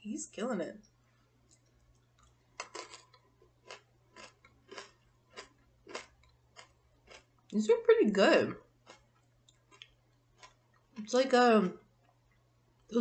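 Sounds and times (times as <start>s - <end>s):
crisp crunching chewing: 1.5s - 7.6s, 8.6s - 11.0s.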